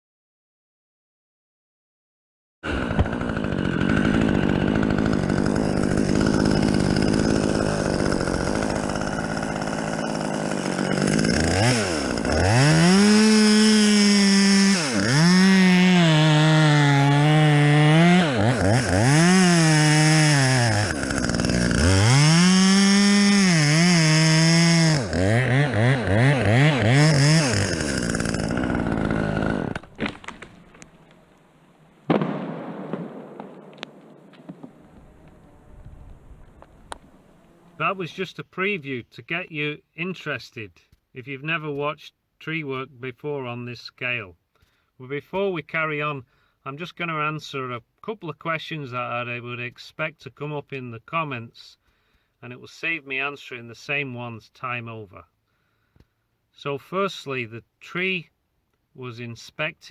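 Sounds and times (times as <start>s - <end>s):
chainsaw revving: 2.6s - 30.6s.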